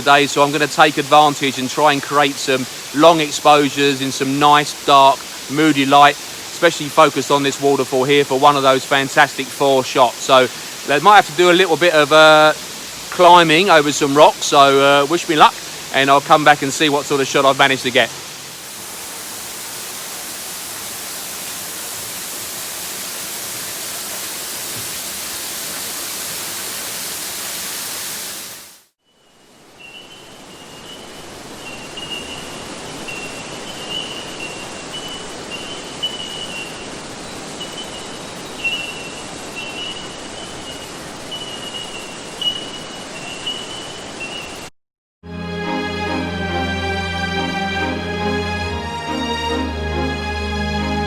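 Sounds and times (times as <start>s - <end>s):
waterfall rushing: 0.0s - 28.9s, 45.3s - 51.0s
quieter water noise: 0.0s - 44.7s.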